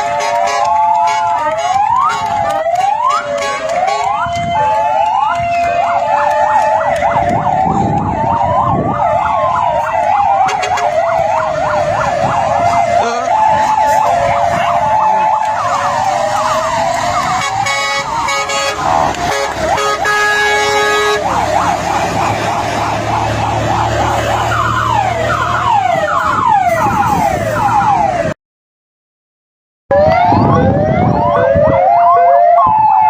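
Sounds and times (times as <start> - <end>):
stacked horn-like tones: 0.0 - 8.9, 10.2 - 11.1, 12.5 - 22.8
fire truck sirens: 0.0 - 28.4, 29.9 - 33.0.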